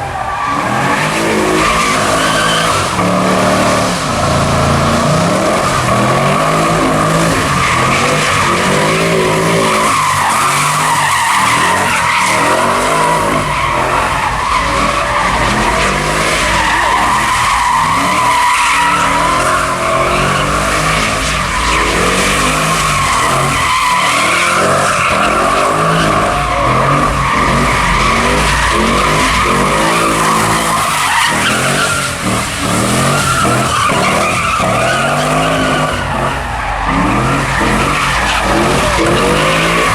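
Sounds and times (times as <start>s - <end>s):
car engine revving: 0.0s - 39.9s
tyres screeching: 0.0s - 39.9s.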